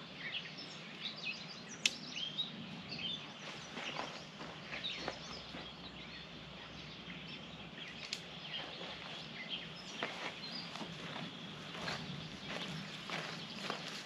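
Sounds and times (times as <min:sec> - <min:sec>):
small birds chirping: 0:00.0 - 0:14.0
steady background hiss: 0:00.0 - 0:14.0
light clicks: 0:08.0 - 0:08.3.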